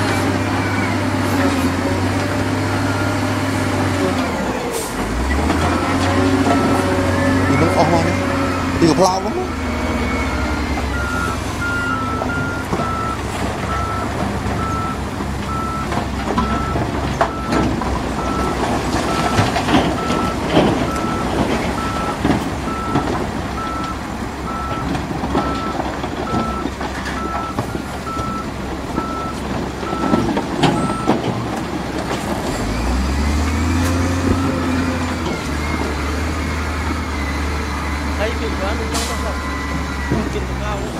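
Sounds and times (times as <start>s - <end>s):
diesel engine rumble: 0.0s - 40.9s
reversing alarm beeping: 6.5s - 31.2s, 33.4s - 40.8s
knocks and clanks: 10.8s - 32.9s.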